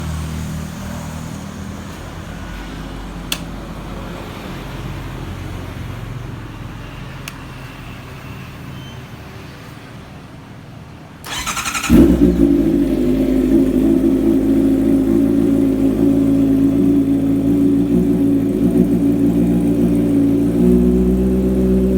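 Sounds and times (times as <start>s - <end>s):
motorcycle engine idling: 11.3s - 21.9s.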